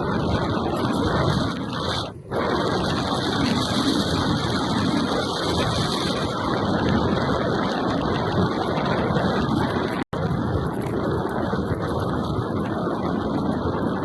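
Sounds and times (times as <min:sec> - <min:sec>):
bike tyre noise on trail: 0:00.0 - 0:14.0
wind rushing over microphone: 0:00.0 - 0:14.0.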